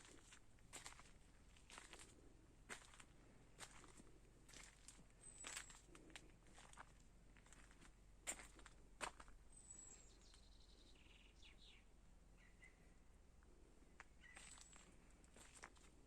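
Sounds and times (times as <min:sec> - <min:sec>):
small birds chirping and trilling: 0:04.5 - 0:06.9, 0:09.5 - 0:13.0, 0:14.0 - 0:15.6.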